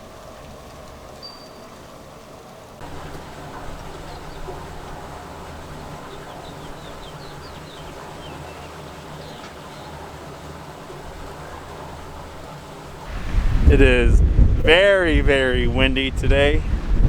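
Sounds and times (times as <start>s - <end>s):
faint bird chirps: 1.2s - 1.8s
wind buffeting microphone: 2.8s - 17.0s.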